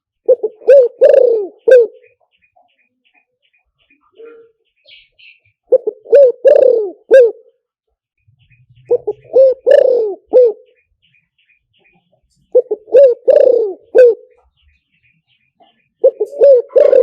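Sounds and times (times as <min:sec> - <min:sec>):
dove cooing: 0:00.0 - 0:02.4, 0:04.0 - 0:07.6, 0:08.6 - 0:10.9, 0:12.4 - 0:14.6, 0:15.6 - 0:17.0
small birds chirping: 0:00.0 - 0:17.0.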